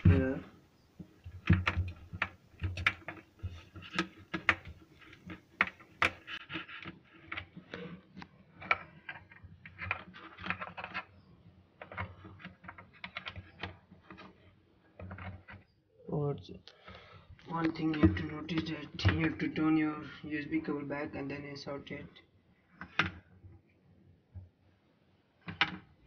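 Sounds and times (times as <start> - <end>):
plastic plug clicks and scrapes: 1.2 - 14.4.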